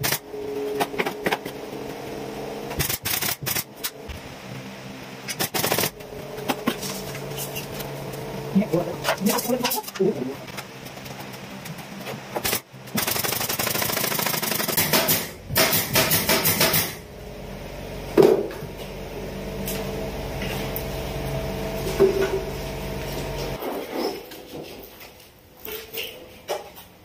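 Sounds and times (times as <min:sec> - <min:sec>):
power tool humming: 0:04.0 - 0:09.8, 0:13.7 - 0:23.6
power tool rapid knocking: 0:12.4 - 0:17.0.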